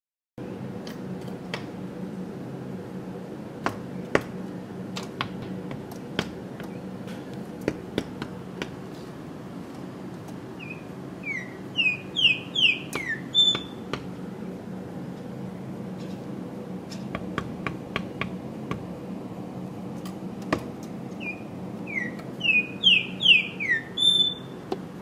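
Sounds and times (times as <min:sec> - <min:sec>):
steady low hum: 0:00.4 - 0:25.0
bird chirping: 0:10.6 - 0:13.9, 0:21.2 - 0:24.6.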